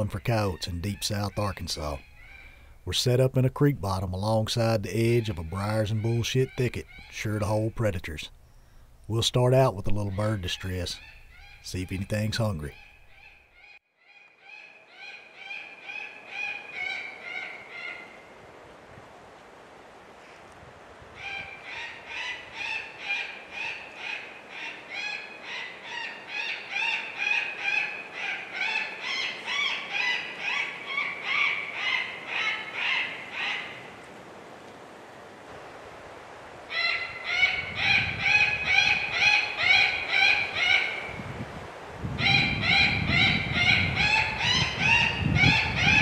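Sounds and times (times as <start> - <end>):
bird distress squawks from call: 0.0 - 2.8, 21.2 - 33.9, 36.7 - 41.2, 42.2 - 46.0.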